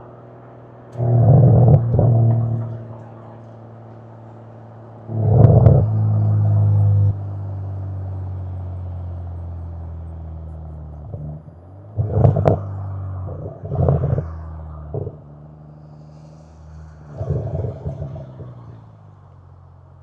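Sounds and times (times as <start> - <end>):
car exhaust drone: 0.0 - 20.0
loud exhaust bursts: 0.9 - 3.5, 5.0 - 7.2, 12.0 - 18.8.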